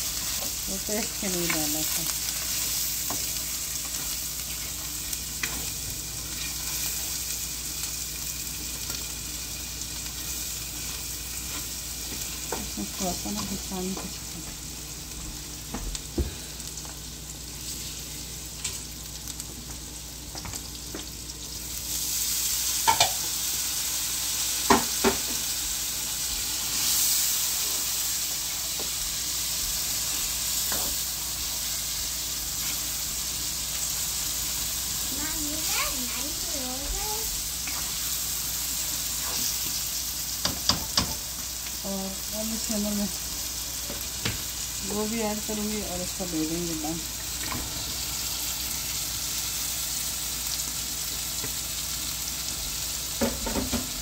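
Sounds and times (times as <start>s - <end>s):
vegetables sizzling in oil: 0.0s - 54.0s
spatula stirring and scraping: 39.1s - 39.8s
sharp knocks against pan: 40.4s - 41.2s.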